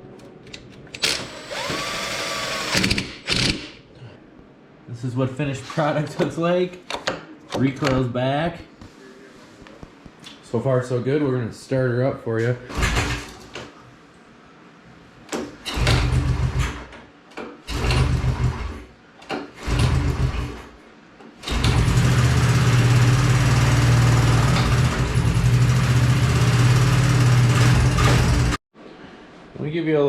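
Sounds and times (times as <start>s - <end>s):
engine cranking and firing: 15.6s - 16.9s, 17.7s - 18.9s, 19.5s - 20.7s, 21.4s - 28.6s.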